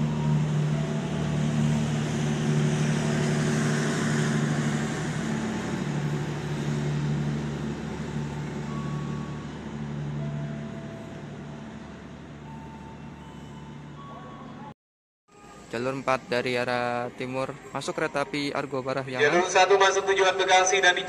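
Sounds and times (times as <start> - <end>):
diesel locomotive hum: 0.0 - 21.0.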